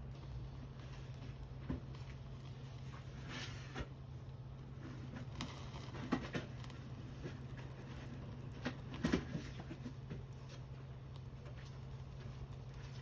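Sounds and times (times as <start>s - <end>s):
steady low hum: 0.0s - 13.0s
wood fire crackling and popping: 0.0s - 13.0s.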